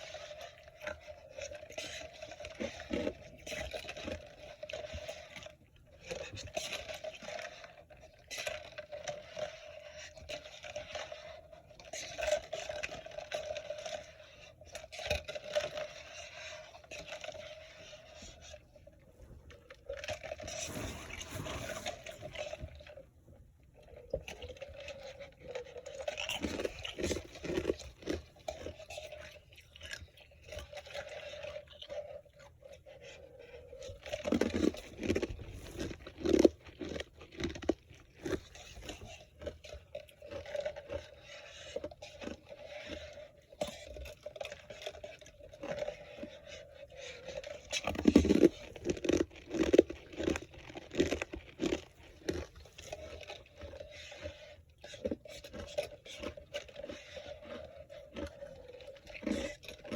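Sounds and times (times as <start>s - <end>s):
person crunching ice: 34.3s - 38.7s, 48.0s - 52.6s.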